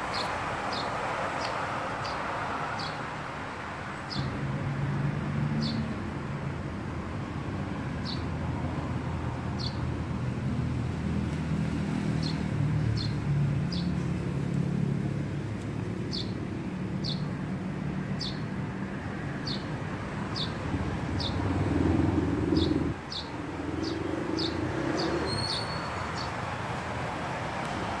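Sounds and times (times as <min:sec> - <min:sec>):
small bird chirping: 0:22.1 - 0:26.3.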